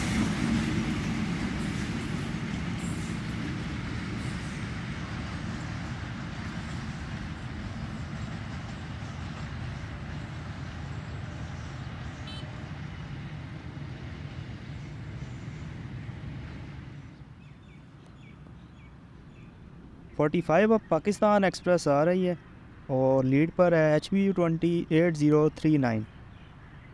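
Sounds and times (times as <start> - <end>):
train wheels on rails: 0.0 - 17.4
diesel locomotive engine rumble: 0.0 - 26.9.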